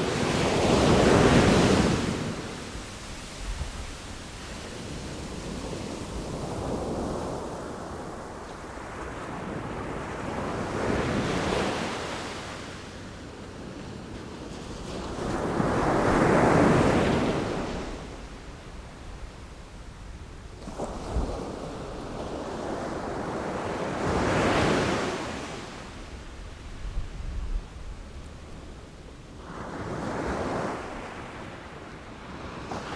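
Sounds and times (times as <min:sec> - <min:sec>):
wind on microphone: 0:00.0 - 0:11.7, 0:26.0 - 0:29.2
sea waves breaking: 0:00.0 - 0:12.6.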